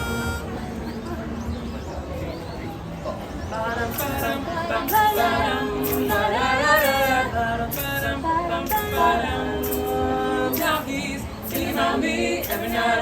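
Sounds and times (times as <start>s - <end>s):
a cappella group singing: 3.4s - 13.0s.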